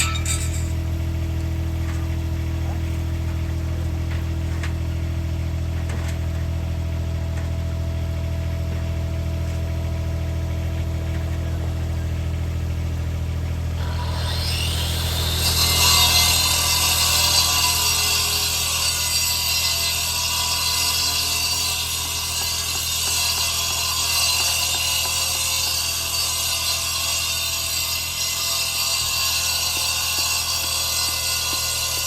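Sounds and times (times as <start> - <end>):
engine idling: 0.0 - 15.1.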